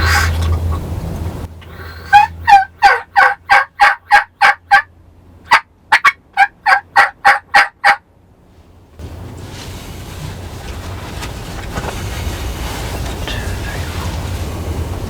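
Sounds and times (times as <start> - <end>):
turkey yelping: 0.0 - 0.8, 1.7 - 4.9, 5.5 - 8.0.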